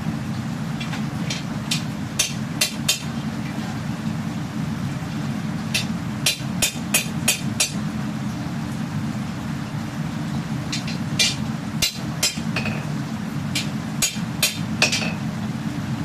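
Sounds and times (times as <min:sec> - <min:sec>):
steady low hum: 0:00.0 - 0:16.0
hammer striking steel on anvil: 0:01.3 - 0:03.1, 0:05.8 - 0:07.8, 0:10.8 - 0:12.8, 0:13.6 - 0:15.2.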